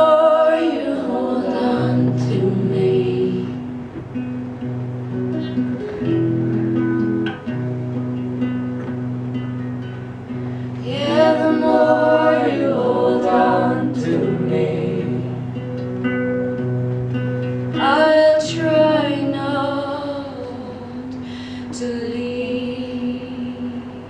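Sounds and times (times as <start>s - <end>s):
woman singing: 0.0s - 3.8s, 10.8s - 15.4s, 17.7s - 24.0s
acoustic guitar chords: 0.0s - 24.0s.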